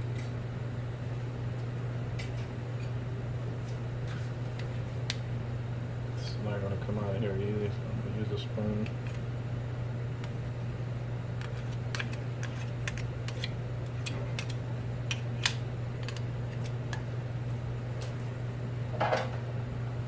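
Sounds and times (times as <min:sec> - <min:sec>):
spoon scraping a container: 0:11.4 - 0:14.1.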